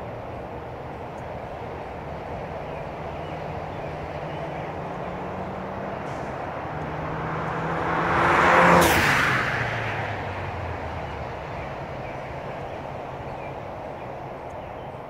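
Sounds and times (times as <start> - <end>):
highway traffic hiss: 0.0 - 15.0
car exhaust drive-by: 3.2 - 14.0.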